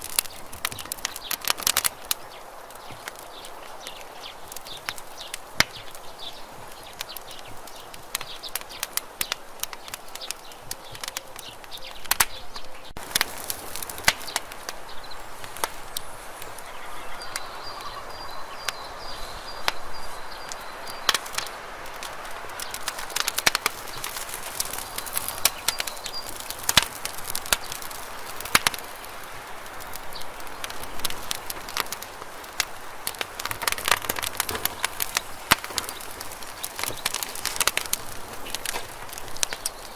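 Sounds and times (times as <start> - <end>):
burning wood crackling and popping: 0.0 - 39.9
fire hiss: 0.0 - 39.9.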